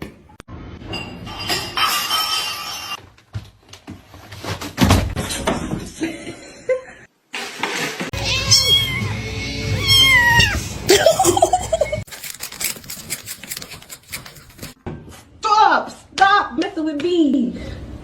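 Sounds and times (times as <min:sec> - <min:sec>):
cat meowing: 0:08.2 - 0:10.6.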